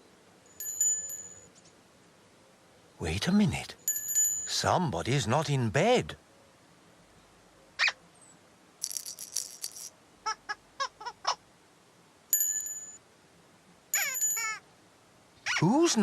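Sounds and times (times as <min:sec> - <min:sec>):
bright bell-like ring: 0:00.5 - 0:01.5, 0:03.9 - 0:04.5, 0:12.3 - 0:13.0, 0:14.0 - 0:14.6
quick chirps: 0:08.8 - 0:09.9
rattle-shaker shake: 0:08.8 - 0:10.0.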